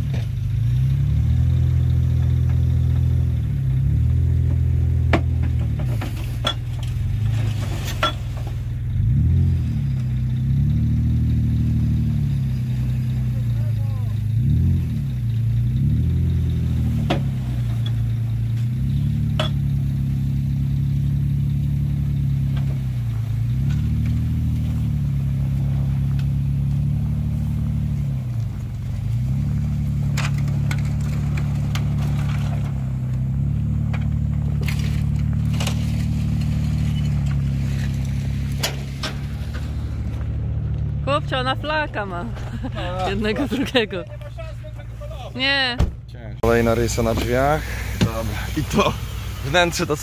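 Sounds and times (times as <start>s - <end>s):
vehicle engine revving: 0.0s - 50.0s
sharp clicks and crunches: 30.0s - 40.9s.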